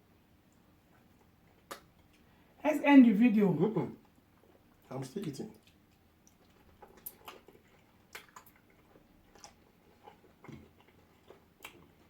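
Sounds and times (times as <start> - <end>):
person chewing: 4.0 - 12.0.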